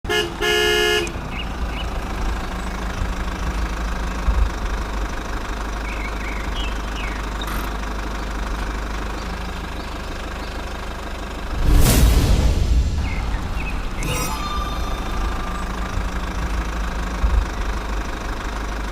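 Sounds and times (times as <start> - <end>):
small engine running: 1.3 - 11.6, 14.0 - 18.9
brief electronic tone: 14.0 - 17.8.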